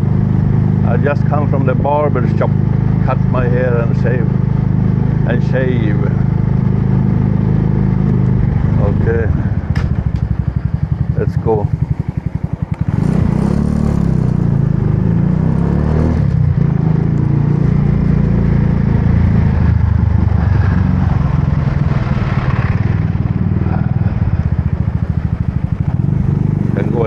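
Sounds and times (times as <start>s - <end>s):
motorbike engine pulling away: 6.1s - 27.0s.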